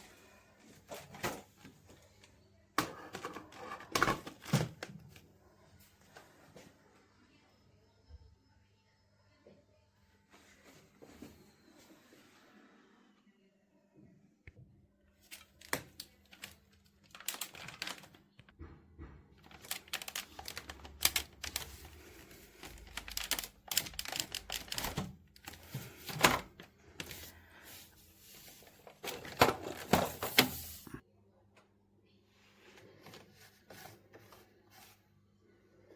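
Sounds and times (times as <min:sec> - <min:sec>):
objects being handled: 0:19.3 - 0:31.0.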